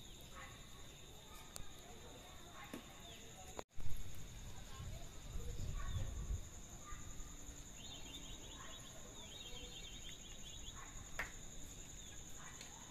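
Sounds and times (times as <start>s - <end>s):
rapid chirping trills: 5.2s - 12.9s.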